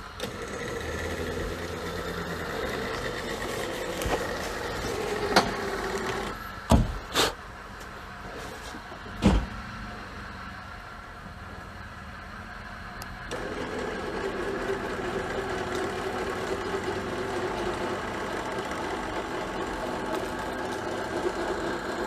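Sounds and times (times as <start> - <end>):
electric winch motor whining: 0.0 - 6.6, 13.2 - 22.0
loud sharp knocks: 6.7 - 7.0.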